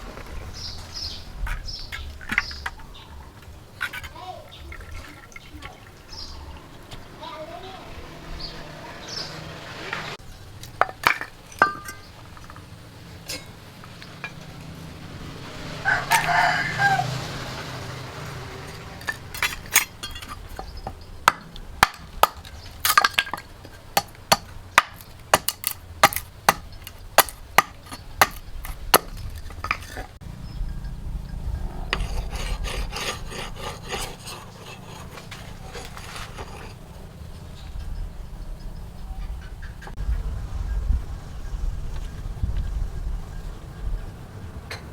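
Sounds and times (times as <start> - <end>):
rubbing and scraping on wood: 0.0 - 30.2, 31.9 - 37.0.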